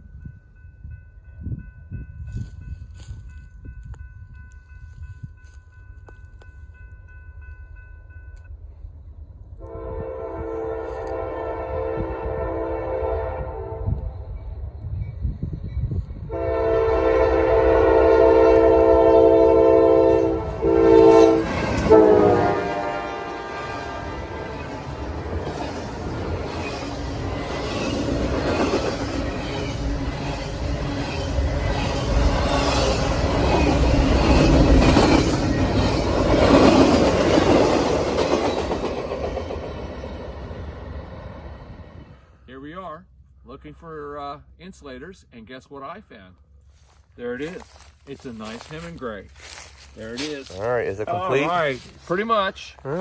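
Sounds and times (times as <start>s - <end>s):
train rumbling: 0.0s - 45.0s, 46.5s - 53.0s
locomotive air horn blasts: 9.6s - 14.2s, 16.3s - 24.9s.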